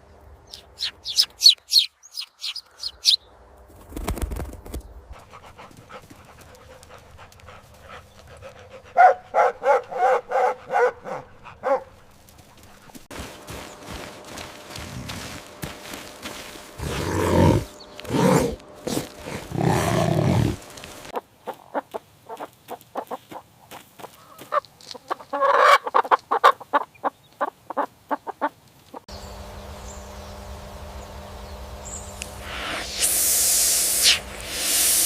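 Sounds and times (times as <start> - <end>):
steady low hum: 2.6 - 21.1, 29.1 - 35.0
chickens clucking: 20.4 - 29.0.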